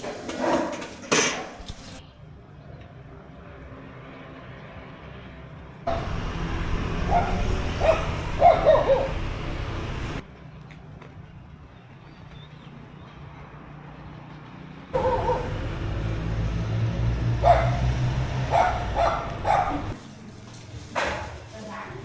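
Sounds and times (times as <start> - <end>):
dog barking and yipping: 5.9 - 10.2, 15.0 - 16.1, 17.2 - 20.0.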